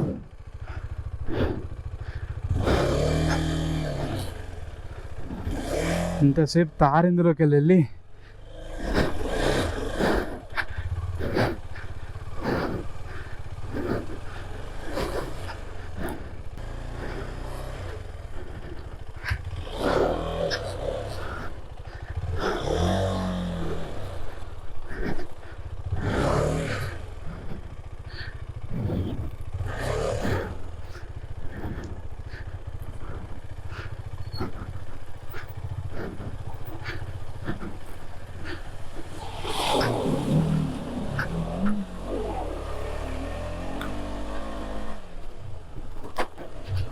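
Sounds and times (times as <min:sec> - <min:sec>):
motorcycle engine running: 0:00.0 - 0:46.9
motorcycle knocking and rattling: 0:24.0 - 0:39.1.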